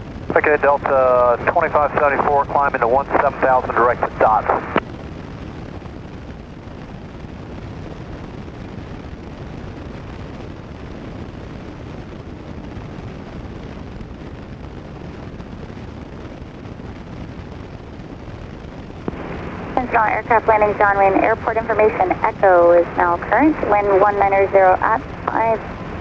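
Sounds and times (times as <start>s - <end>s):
airplane engine drone: 0.0s - 8.0s, 18.9s - 26.0s.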